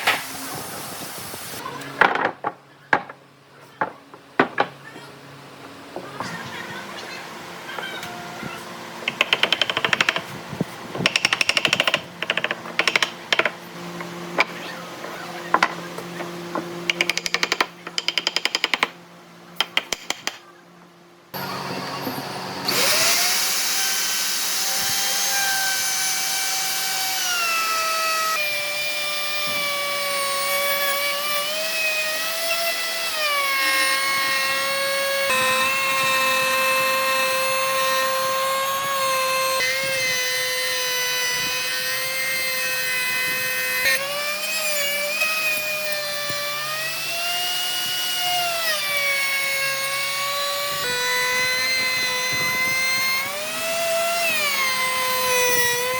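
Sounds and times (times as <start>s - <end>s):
power tool motor cutting wood: 21.4s - 55.9s.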